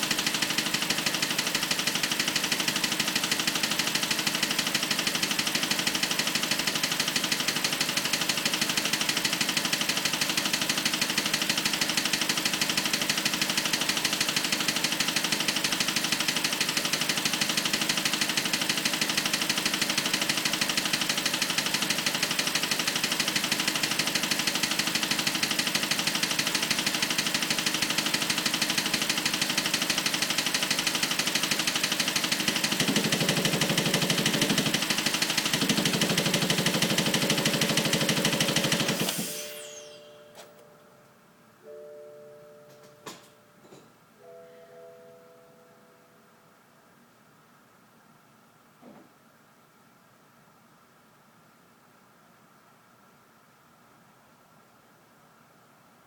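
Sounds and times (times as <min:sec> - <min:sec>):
car engine idling: 0:21.6 - 0:39.5.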